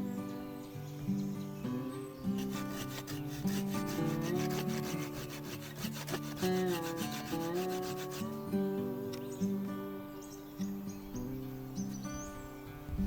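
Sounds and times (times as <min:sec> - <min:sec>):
acoustic guitar music: 0:00.0 - 0:13.0
hand tool rasping wood: 0:02.3 - 0:09.2.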